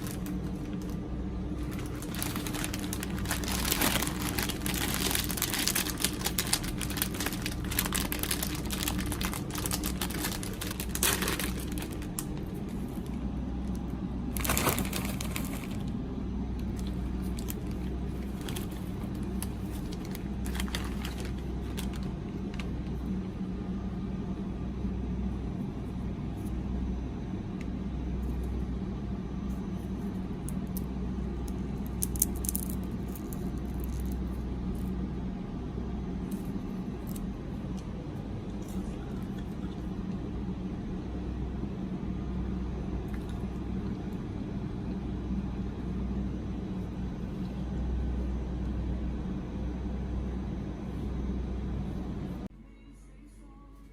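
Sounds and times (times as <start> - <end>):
snack packaging crinkling: 0.0 - 13.2, 14.3 - 16.0, 16.6 - 23.1
steady low hum: 0.0 - 53.9.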